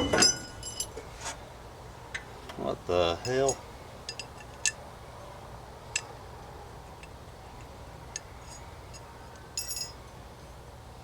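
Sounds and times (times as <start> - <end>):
ringing metallic clink: 0.0 - 1.0, 8.2 - 10.0.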